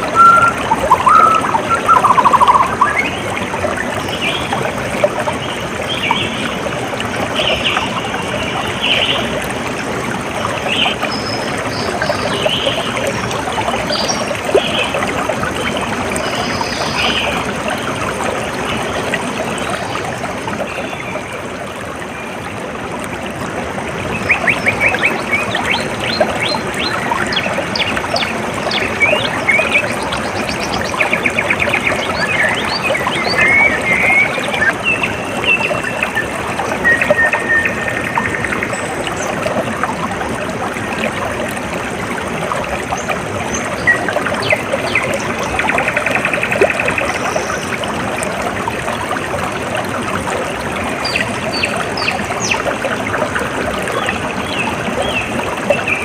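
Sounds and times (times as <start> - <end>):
small birds chirping: 0.0 - 3.2
water trickling: 0.0 - 56.0.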